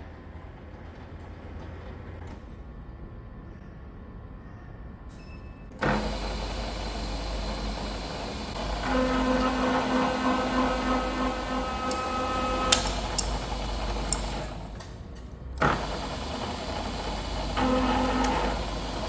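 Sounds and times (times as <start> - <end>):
milling machine hum: 5.8 - 19.0.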